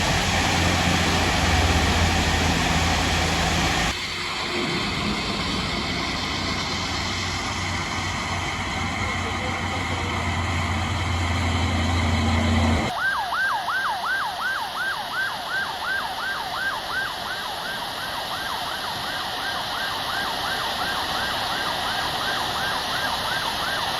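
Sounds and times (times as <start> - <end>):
emergency siren yelping: 0.0 - 4.0, 4.8 - 23.9
low engine hum: 0.0 - 12.9.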